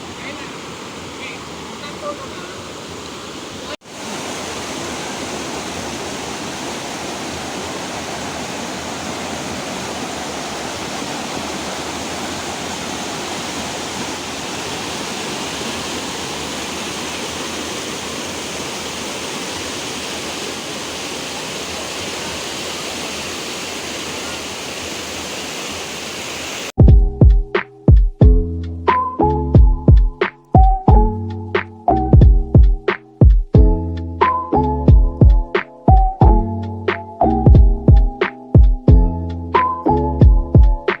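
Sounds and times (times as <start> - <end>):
waterfall roar: 0.0 - 26.7.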